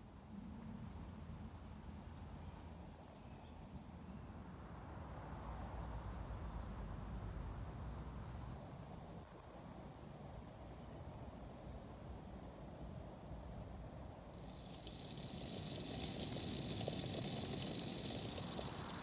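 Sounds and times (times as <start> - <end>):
low outdoor background rumble: 6.3 - 19.0
small birds chirping: 14.4 - 19.0.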